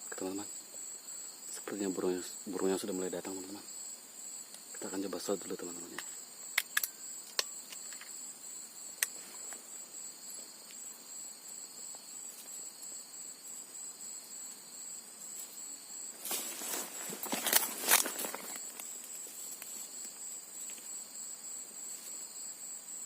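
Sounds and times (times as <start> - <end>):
insects trilling: 0.0 - 23.0
rustling noise: 15.2 - 21.0.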